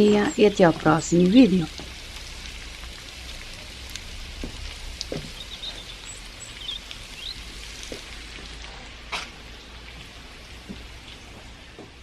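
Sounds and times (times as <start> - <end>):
raindrops ticking: 0.0 - 12.0
steady rain falling: 0.0 - 12.0
faint bird chirps: 5.3 - 7.4.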